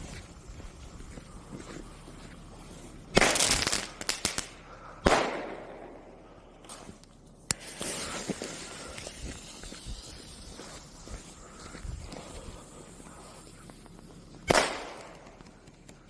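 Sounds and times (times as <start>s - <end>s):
firework launch hiss: 3.1s - 5.8s, 6.7s - 15.4s
firework bangs: 3.1s - 6.2s, 14.0s - 15.5s
firework cracks: 3.1s - 11.5s, 12.1s - 16.0s.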